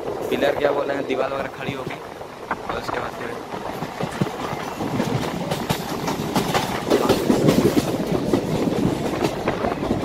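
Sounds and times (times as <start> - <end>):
train wheels rattling on rails: 0.0 - 10.0
sharp clacks of wheels: 3.5 - 10.0.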